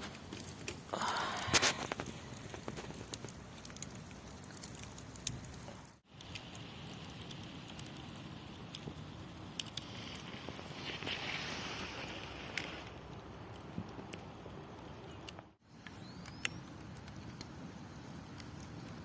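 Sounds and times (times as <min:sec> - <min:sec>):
campfire crackling: 0:00.0 - 0:19.0
faint hiss: 0:06.0 - 0:13.4.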